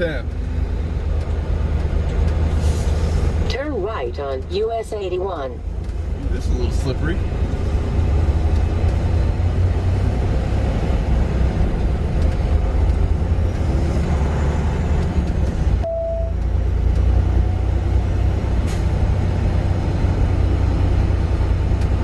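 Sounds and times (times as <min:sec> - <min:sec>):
road noise: 0:00.0 - 0:22.0
truck engine droning: 0:00.0 - 0:22.0
short beep: 0:15.8 - 0:16.4.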